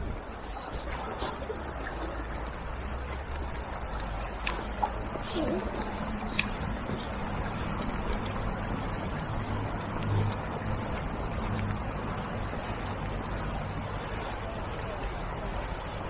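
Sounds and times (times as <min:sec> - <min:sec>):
small birds chirping: 0:05.2 - 0:08.6.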